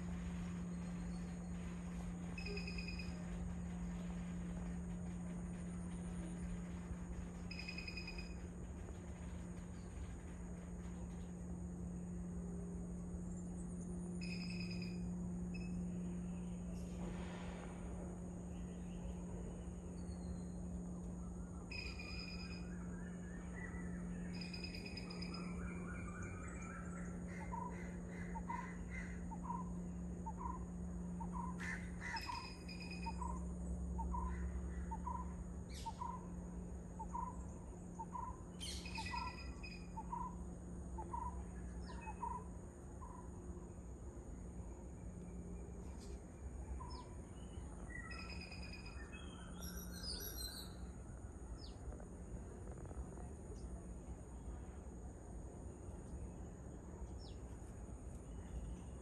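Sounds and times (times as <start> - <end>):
high-pitched drone: 0.0 - 8.6.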